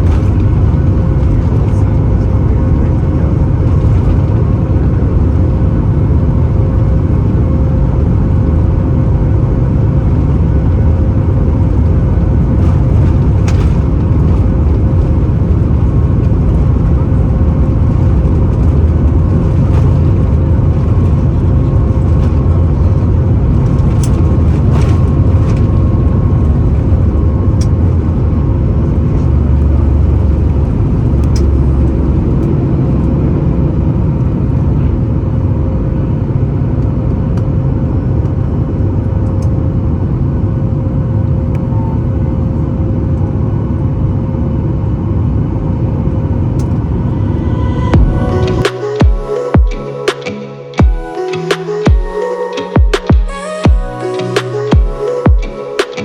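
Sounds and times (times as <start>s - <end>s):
airliner cabin engine rumble: 0.0s - 51.8s.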